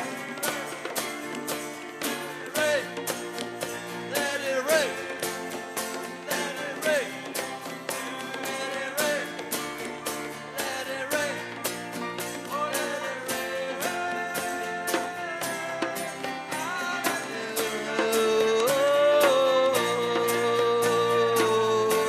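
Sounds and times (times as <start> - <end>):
fast drum beat: 0.0 - 22.0
worship band music: 0.0 - 22.0.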